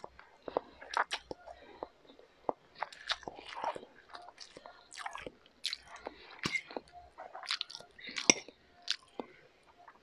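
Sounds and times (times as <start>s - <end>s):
close-miked chewing noodles: 0.0s - 10.0s.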